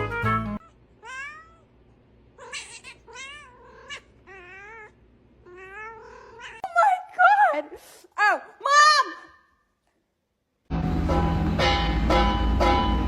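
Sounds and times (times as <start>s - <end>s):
cat meowing: 0.6s - 1.7s, 2.4s - 6.7s.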